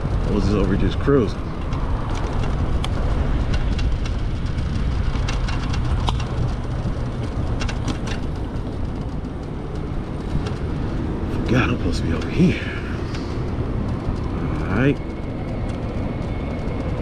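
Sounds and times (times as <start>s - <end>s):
road noise: 0.0s - 17.0s
wind rumble on microphone: 0.0s - 17.0s.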